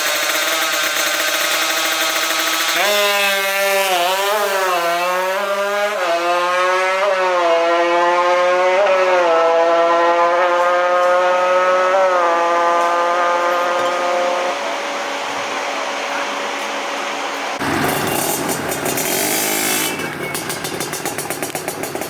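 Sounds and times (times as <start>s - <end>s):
two-stroke engine revving: 0.0s - 22.0s.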